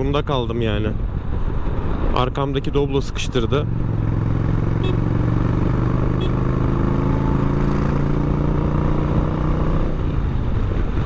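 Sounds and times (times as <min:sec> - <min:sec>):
road noise: 0:00.0 - 0:11.0
motorcycle engine running: 0:03.7 - 0:09.9.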